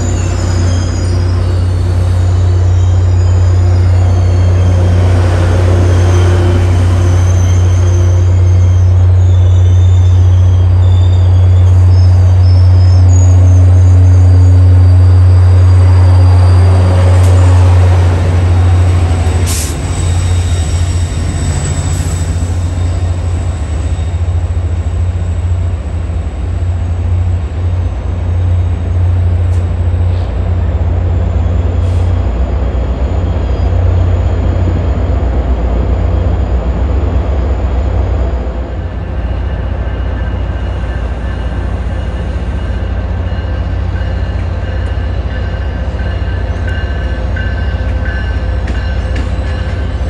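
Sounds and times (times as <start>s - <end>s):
high wheel squeal: 0.0s - 18.0s, 18.6s - 24.5s
train wheels rumbling on rail: 0.0s - 50.0s.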